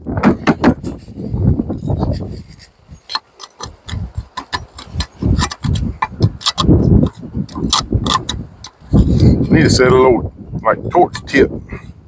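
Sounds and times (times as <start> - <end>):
dull low thuds: 0.0 - 10.6
knife scraping metal: 1.8 - 9.6.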